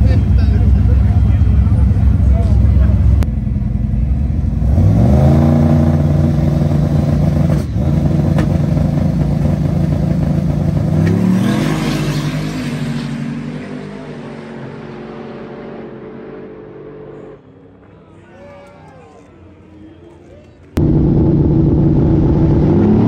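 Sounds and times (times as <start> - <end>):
racing engine revving: 4.5 - 17.4, 20.8 - 23.0.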